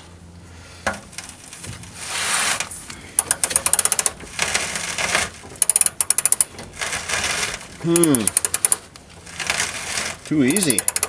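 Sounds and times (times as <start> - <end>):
bolt grating in threads: 2.5 - 11.0
ratchet wrench pawl clicks: 3.2 - 4.2, 5.6 - 6.5, 7.8 - 8.8, 10.4 - 11.0.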